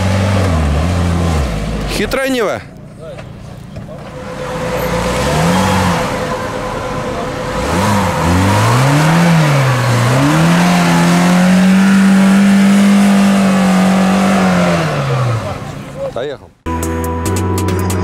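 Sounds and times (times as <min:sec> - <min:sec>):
car engine revving hard: 0:00.0 - 0:02.0, 0:04.1 - 0:16.1.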